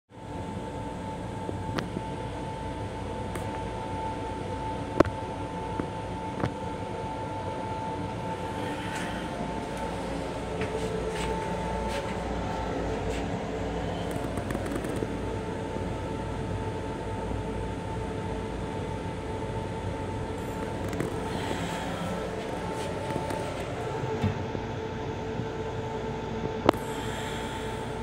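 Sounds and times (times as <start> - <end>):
train interior rumble and hiss: 5.9 - 19.2, 20.1 - 28.0
sharp clicks and rattles: 14.0 - 15.2.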